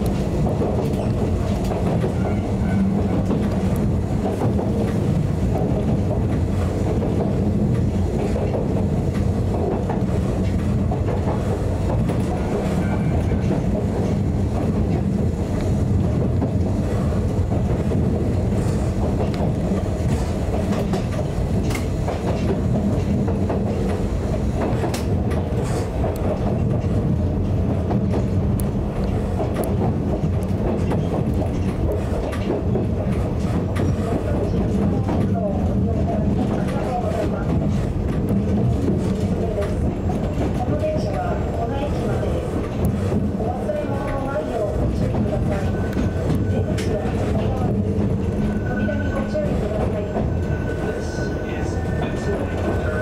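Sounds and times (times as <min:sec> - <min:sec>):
railcar running rumble: 0:00.0 - 0:53.0
wheel clicks over rail joints: 0:20.6 - 0:35.4.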